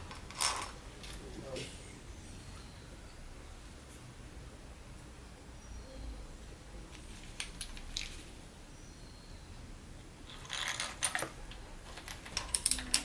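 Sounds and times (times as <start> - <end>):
metal tools clicking and clinking: 0.0 - 1.2, 10.3 - 13.0.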